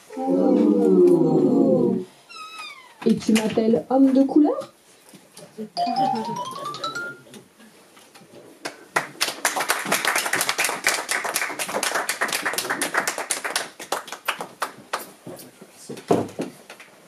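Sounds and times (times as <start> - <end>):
audience applauding: 8.7 - 15.1.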